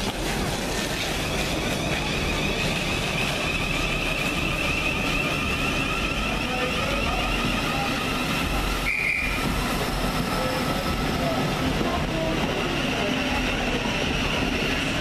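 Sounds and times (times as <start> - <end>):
electric train whine: 0.0 - 15.0
train wheels rumbling on track: 0.0 - 15.0.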